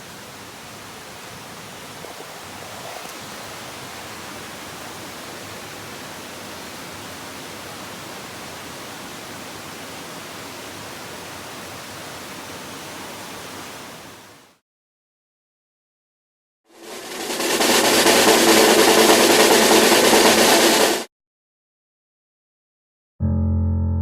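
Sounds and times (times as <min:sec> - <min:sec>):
falling water rushing: 0:00.0 - 0:14.6, 0:16.7 - 0:21.1.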